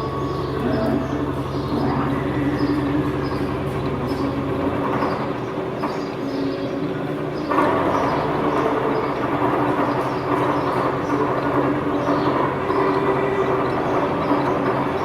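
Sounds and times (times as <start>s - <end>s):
metal lathe gearing hum: 0.0s - 15.0s
rough rattle: 7.4s - 15.0s.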